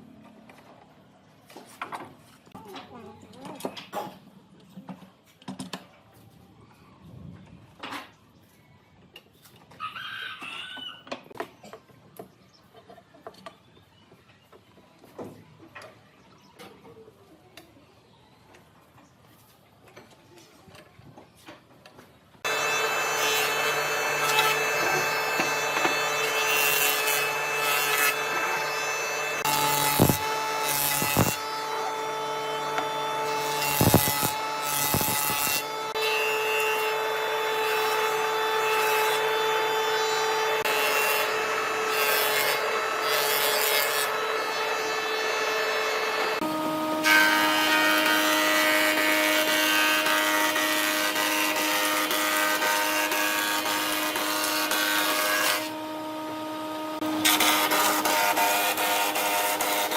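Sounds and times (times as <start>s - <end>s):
power tool whining on wood: 22.4s - 59.9s.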